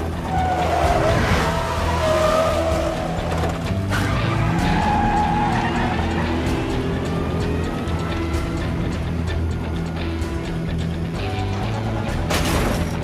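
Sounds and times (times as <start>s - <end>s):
car engines running hard: 0.0s - 13.0s
tyres squealing: 0.2s - 8.6s.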